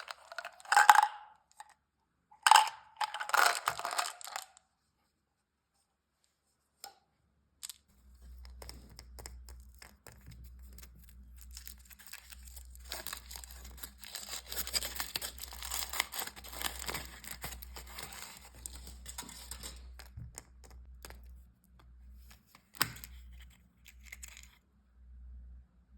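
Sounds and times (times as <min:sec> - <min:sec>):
candy wrapper crinkling: 0:02.5 - 0:04.6, 0:08.4 - 0:21.3, 0:22.2 - 0:24.6.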